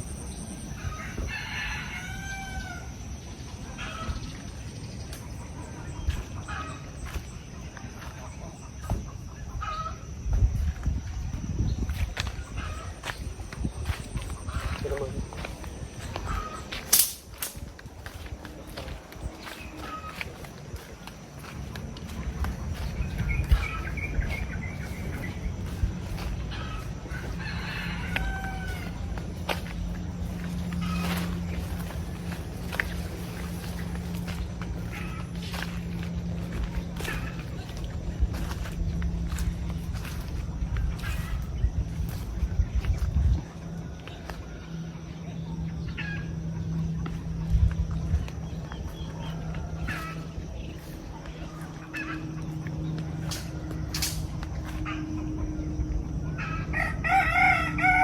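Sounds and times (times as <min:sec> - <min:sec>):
steady low rumble: 0:00.0 - 0:58.0
rooster crowing: 0:00.7 - 0:03.2, 0:23.0 - 0:35.9, 0:51.8 - 0:58.0
chicken calls: 0:00.7 - 0:10.5, 0:12.0 - 0:43.1, 0:48.2 - 0:58.0.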